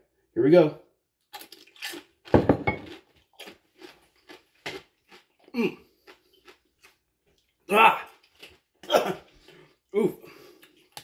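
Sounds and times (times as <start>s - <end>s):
person grunting: 5.5s - 5.8s, 7.7s - 8.1s, 10.0s - 10.3s.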